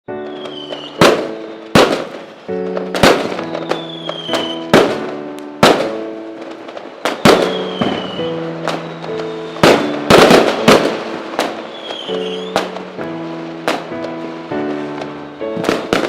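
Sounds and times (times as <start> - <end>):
music with held notes: 0.1 - 16.0
fireworks bangs: 0.2 - 16.0
falling whistle: 0.3 - 1.0, 3.6 - 4.7, 7.2 - 10.1, 11.7 - 12.6.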